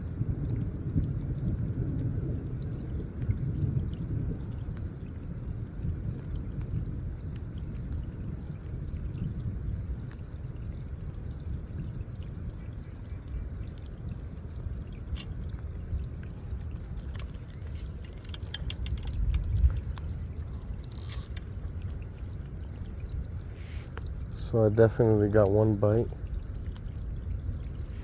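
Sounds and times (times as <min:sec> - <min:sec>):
light rain: 0:00.0 - 0:28.0
low storm rumble: 0:00.0 - 0:28.0
small clicks and ticks: 0:13.3 - 0:24.1, 0:24.9 - 0:28.0.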